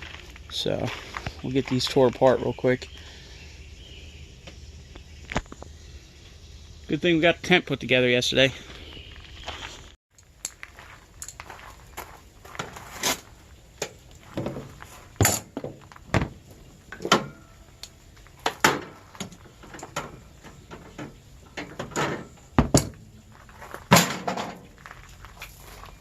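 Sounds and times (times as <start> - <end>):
metal knocks and clanks: 14.3 - 17.6, 18.4 - 24.8.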